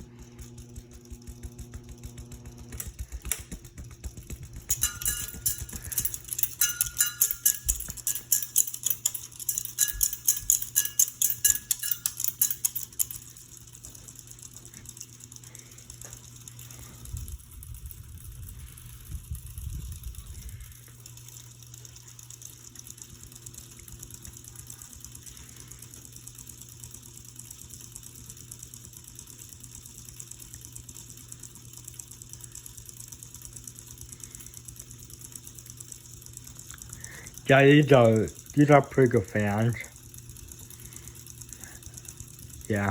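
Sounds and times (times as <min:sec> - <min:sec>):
ceiling fan motor hum: 0:00.0 - 0:42.9
ringing metallic clinks: 0:04.7 - 0:14.1.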